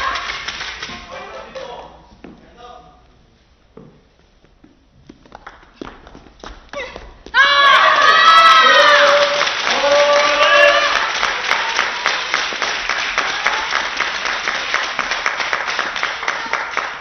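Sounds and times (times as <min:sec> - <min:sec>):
rhythmic clapping in unison: 0:00.0 - 0:02.0, 0:09.0 - 0:17.0
spectators cheering: 0:07.4 - 0:14.8.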